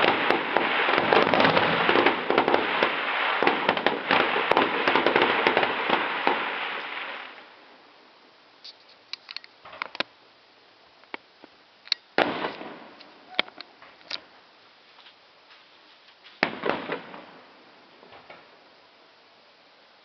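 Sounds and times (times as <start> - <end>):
fireworks crackling and popping: 0.0 - 10.2, 11.0 - 18.8.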